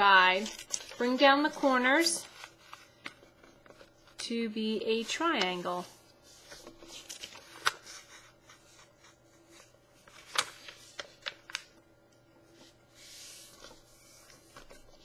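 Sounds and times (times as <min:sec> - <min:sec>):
paper crinkling: 0:00.0 - 0:04.2, 0:04.9 - 0:11.8, 0:12.5 - 0:15.0
paper crease rubbing swish: 0:12.9 - 0:14.8.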